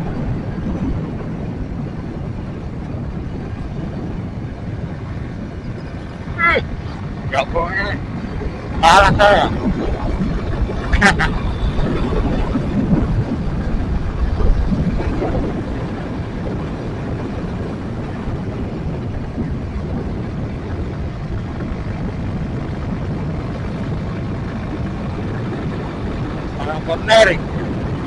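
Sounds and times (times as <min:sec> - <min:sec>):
road noise: 0:00.0 - 0:28.0.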